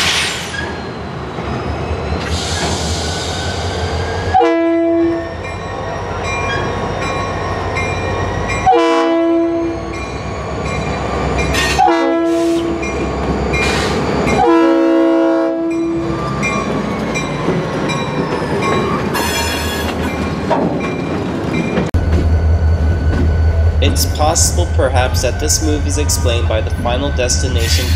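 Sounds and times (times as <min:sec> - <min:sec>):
locomotive air horn blasts: 0:04.3 - 0:05.2, 0:08.7 - 0:09.8, 0:11.6 - 0:12.8, 0:14.4 - 0:15.9
idling locomotive rumble: 0:21.9 - 0:27.9.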